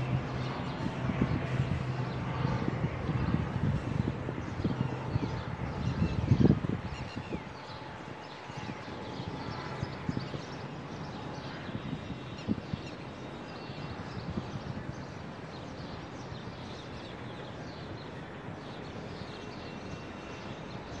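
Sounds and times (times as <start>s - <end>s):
wind on microphone: 0.0s - 19.1s.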